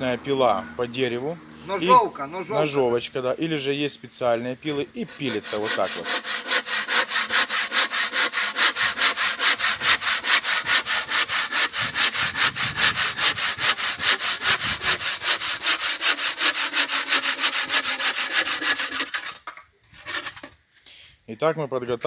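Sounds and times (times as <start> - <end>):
handsaw cutting through block: 4.6 - 20.6.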